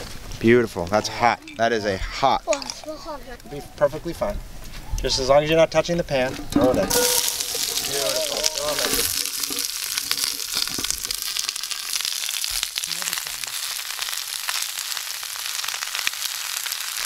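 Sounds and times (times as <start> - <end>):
onions sizzling with pops: 6.9 - 17.0.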